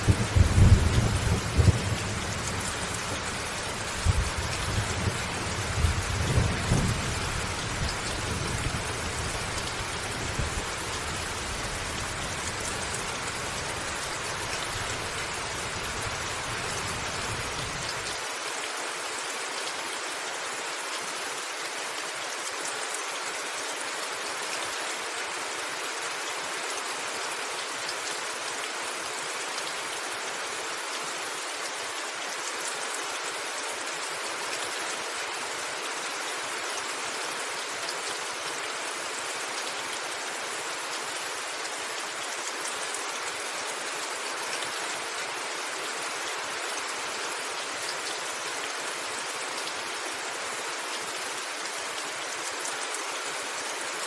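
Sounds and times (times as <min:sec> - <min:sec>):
rolling thunder: 0:00.0 - 0:03.1
rain on a roof: 0:00.0 - 0:54.0.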